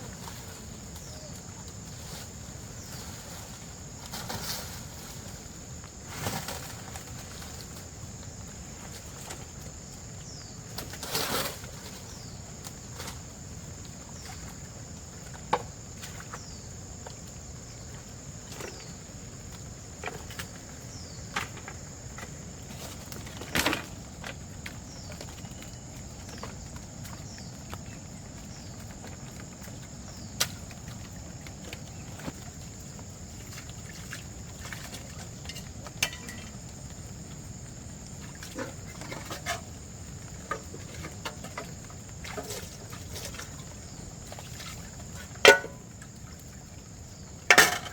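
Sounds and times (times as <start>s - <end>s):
insects droning: 0.0s - 47.9s
sharp knocks and rustles: 18.4s - 25.6s, 28.6s - 47.9s.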